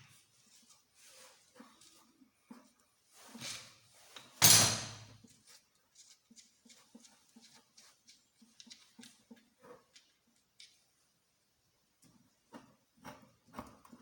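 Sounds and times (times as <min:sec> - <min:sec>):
tools tapping and clicking: 0:04.2 - 0:11.0.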